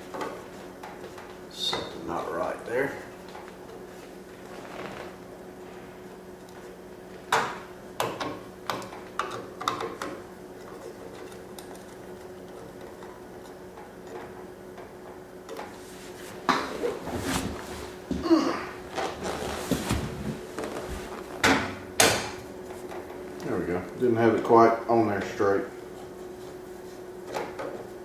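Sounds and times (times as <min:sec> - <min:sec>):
steady low hum: 0:00.0 - 0:28.0
heater parts clicking and knocking: 0:06.4 - 0:15.8.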